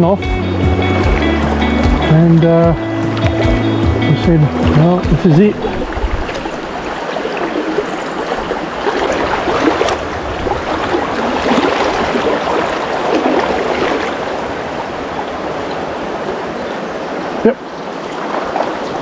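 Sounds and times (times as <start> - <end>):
stream flowing with gurgling: 0.0 - 19.0.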